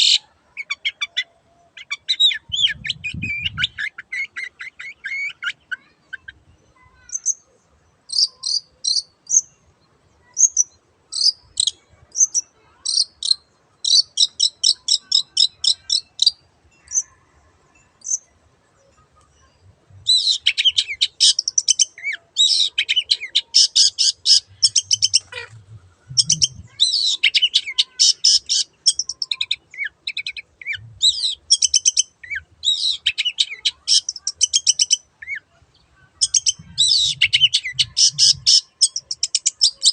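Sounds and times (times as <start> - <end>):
shrike singing rapid chattering: 23.5 - 25.6, 26.2 - 29.6.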